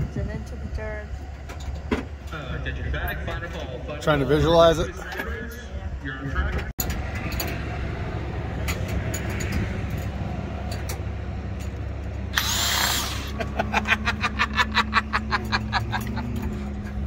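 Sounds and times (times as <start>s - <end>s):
burst of hiss: 12.4s - 13.4s.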